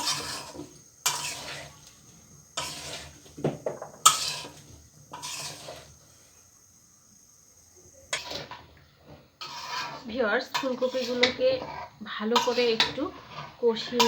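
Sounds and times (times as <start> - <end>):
spatula scraping in a pan: 0.0 - 6.7, 8.0 - 14.0.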